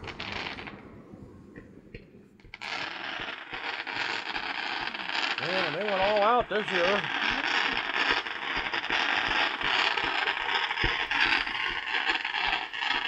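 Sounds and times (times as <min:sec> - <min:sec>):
fireworks crackling: 0:00.0 - 0:13.0
fireworks popping: 0:00.0 - 0:13.0.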